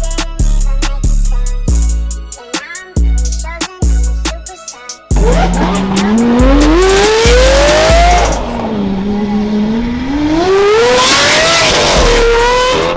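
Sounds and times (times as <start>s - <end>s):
deep music bass line: 0.0s - 2.2s, 5.1s - 12.9s
car engine revving: 5.1s - 12.9s.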